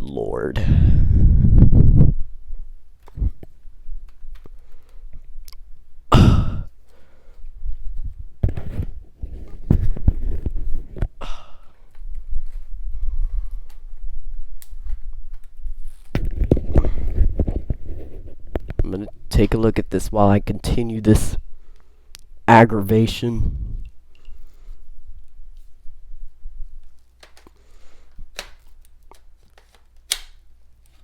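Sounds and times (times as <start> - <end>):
person sighing heavily: 0.6 - 1.4, 6.1 - 7.3, 11.2 - 11.9
plastic parts clicking and knocking: 27.0 - 31.0.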